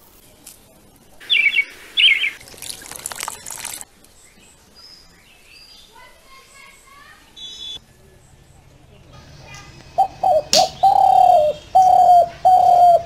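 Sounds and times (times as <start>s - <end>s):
bird warbling calls: 1.2s - 2.4s, 5.4s - 13.0s
faint distant chirps: 1.2s - 13.0s.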